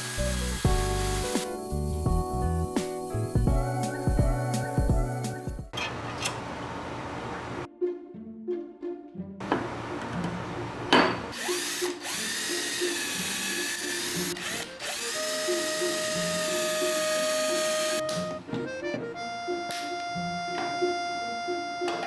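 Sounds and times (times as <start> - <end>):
power tool motor whining: 0.0 - 1.8, 11.3 - 18.1
background music: 0.0 - 5.7, 7.7 - 22.0.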